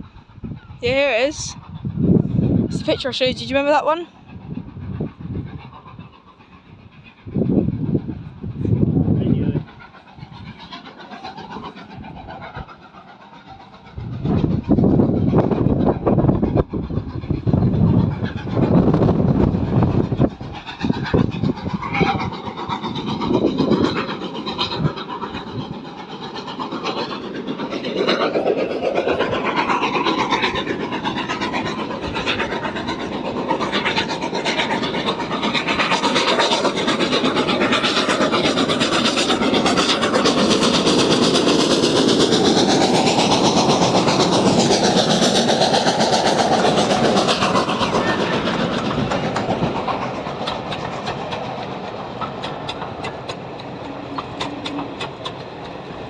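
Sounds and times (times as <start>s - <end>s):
passenger train passing: 0.0s - 56.0s
wheels clacking over rail joints: 22.1s - 56.0s.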